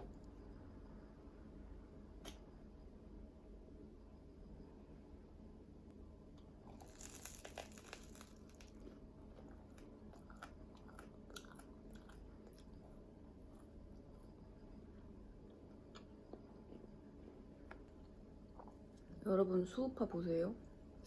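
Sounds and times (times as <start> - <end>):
crunching of chewing bagel: 6.4 - 14.5.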